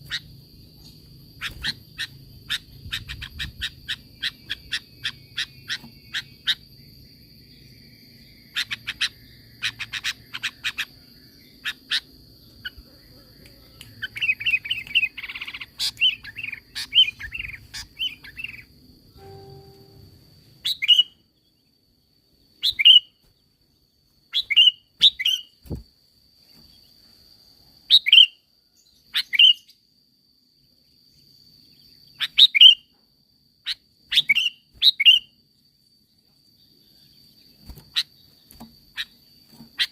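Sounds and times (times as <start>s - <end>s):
bulbul singing chirps and calls: 0.0s - 20.0s, 20.6s - 21.7s, 22.6s - 23.2s, 24.3s - 25.6s, 27.9s - 29.9s, 31.1s - 32.9s, 33.6s - 35.4s.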